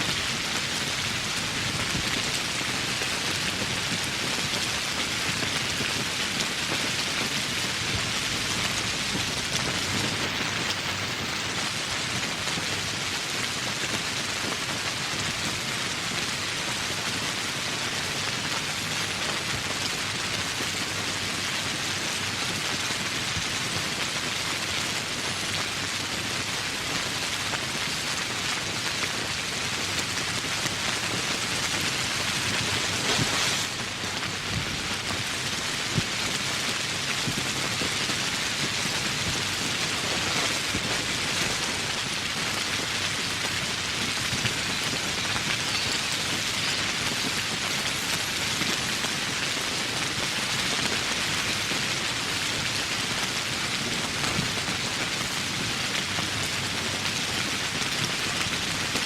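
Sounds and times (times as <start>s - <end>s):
heavy rain falling: 0.0s - 59.0s
sharp raindrop ticks: 21.7s - 59.0s.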